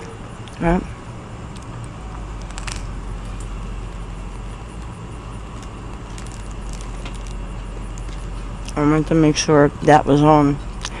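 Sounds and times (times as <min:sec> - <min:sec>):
steady low rumble: 0:00.0 - 0:11.0
person chewing crisp toast: 0:01.4 - 0:08.8.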